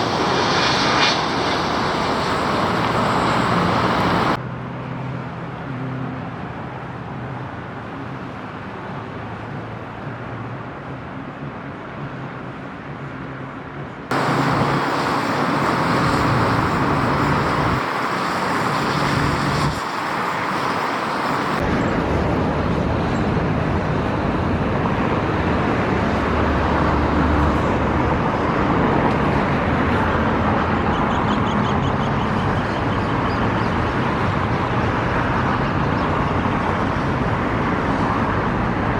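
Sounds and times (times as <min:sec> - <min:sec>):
jet engines running: 0:00.0 - 0:04.4, 0:14.1 - 0:38.9.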